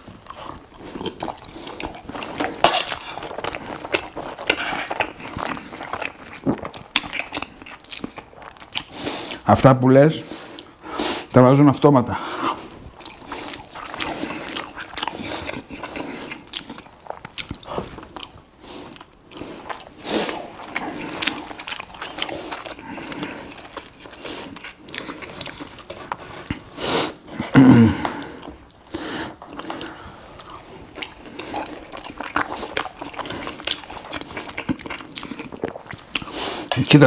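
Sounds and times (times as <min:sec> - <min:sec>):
chewing and biting: 0:00.1 - 0:09.4, 0:12.5 - 0:26.8, 0:28.1 - 0:37.0
cutlery scraping on a plate: 0:02.6 - 0:03.3, 0:04.5 - 0:05.0.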